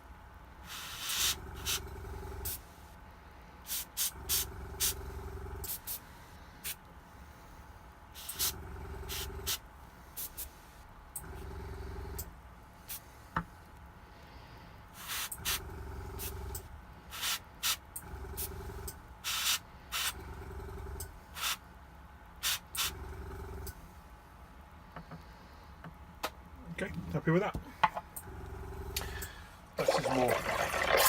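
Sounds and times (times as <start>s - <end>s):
air compressor motor humming: 0.0s - 25.7s, 26.6s - 31.0s
airbrush hissing bursts: 0.7s - 1.8s, 3.7s - 4.9s, 8.2s - 8.5s, 15.0s - 15.6s, 17.1s - 17.9s, 19.2s - 20.2s, 21.4s - 21.6s, 22.4s - 22.9s.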